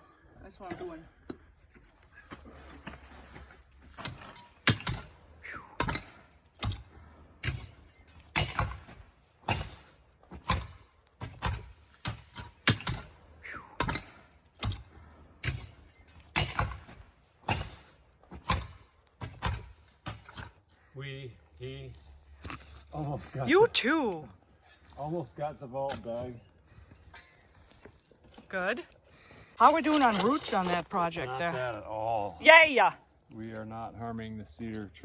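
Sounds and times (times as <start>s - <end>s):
tool scraping ground: 1.7s - 5.3s, 24.5s - 28.5s, 29.4s - 31.6s.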